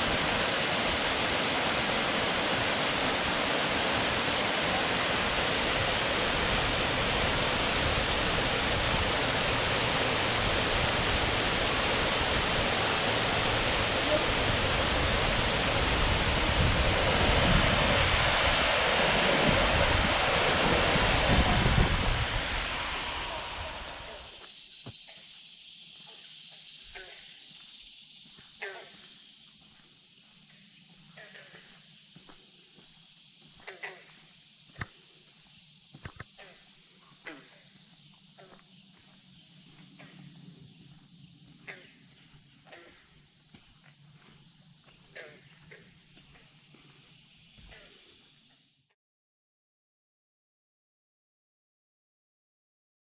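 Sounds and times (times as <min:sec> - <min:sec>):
rushing water roaring: 0:00.0 - 0:24.4
insects droning: 0:00.0 - 0:49.0
wind buffeting microphone: 0:05.0 - 0:24.3.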